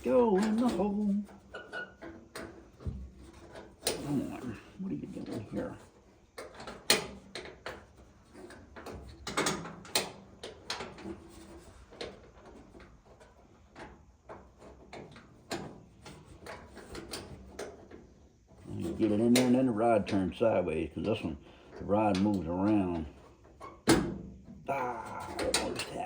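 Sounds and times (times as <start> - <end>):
metallic clicks and clunks: 6.4 - 18.1, 18.8 - 24.6, 25.2 - 26.0.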